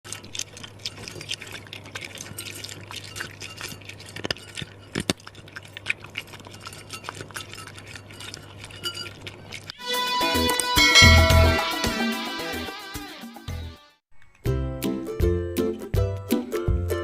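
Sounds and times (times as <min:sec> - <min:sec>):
cats crunching dry kibble: 0:00.1 - 0:09.7.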